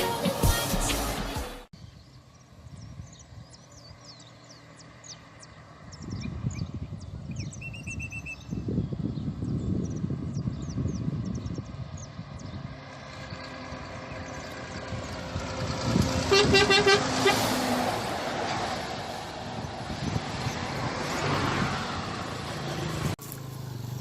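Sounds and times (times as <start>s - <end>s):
vehicle noise: 0.0s - 24.0s
truck horn short toots: 16.3s - 17.6s.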